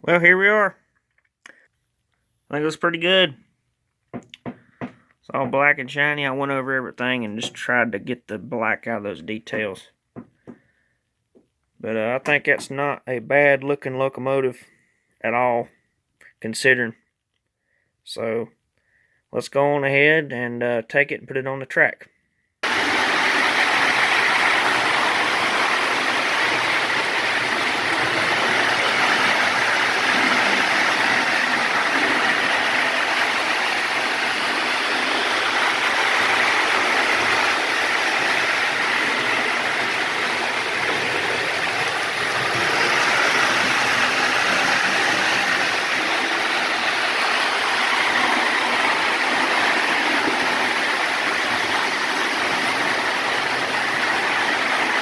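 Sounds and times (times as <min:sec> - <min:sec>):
model train motor whirring: 0:22.6 - 0:55.0.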